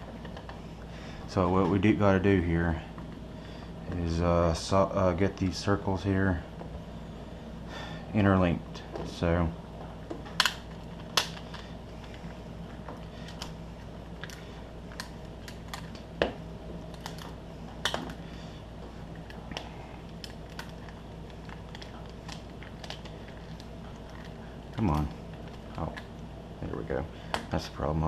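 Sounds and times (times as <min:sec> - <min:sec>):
steady low hum: 0:00.0 - 0:28.0
plastic snaps: 0:10.1 - 0:11.7.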